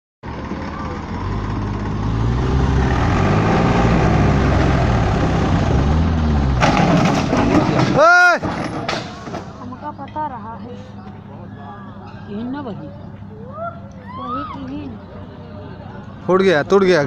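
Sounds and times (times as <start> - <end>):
tractor engine labouring: 0.2 - 10.0
harsh clattering: 6.6 - 9.5.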